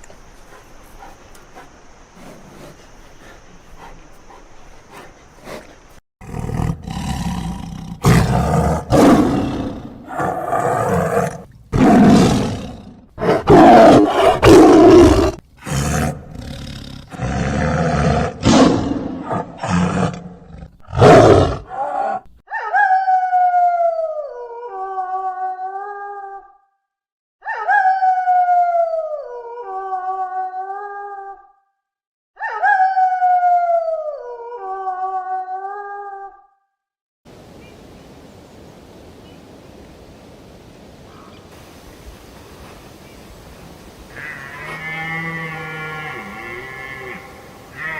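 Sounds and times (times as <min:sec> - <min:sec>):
big cat roaring and growling: 0:06.2 - 0:22.2.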